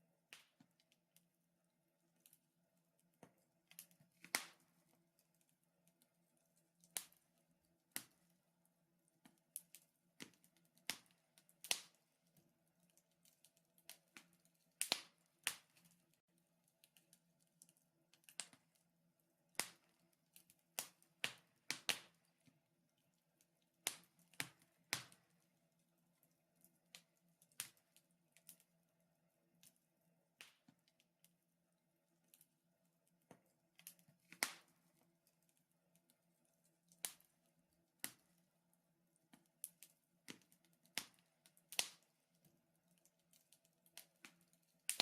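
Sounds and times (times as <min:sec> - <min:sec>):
wood fire crackling and popping: 0:03.2 - 0:06.1, 0:06.7 - 0:08.4, 0:09.2 - 0:18.8, 0:19.5 - 0:22.6, 0:23.4 - 0:25.6, 0:26.2 - 0:28.6, 0:30.4 - 0:31.1, 0:33.3 - 0:35.5, 0:36.4 - 0:37.4, 0:38.0 - 0:38.4, 0:39.3 - 0:45.0.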